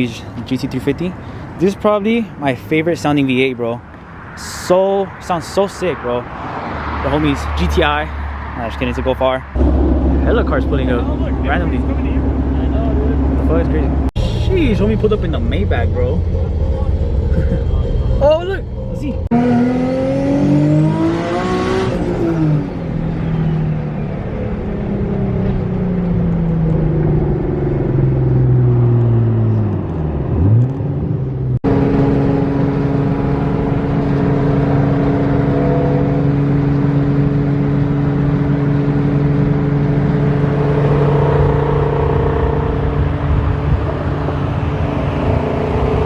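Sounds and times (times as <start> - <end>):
car engine revving: 6.4 - 46.0
engine running steadily: 9.6 - 19.3, 31.6 - 46.0.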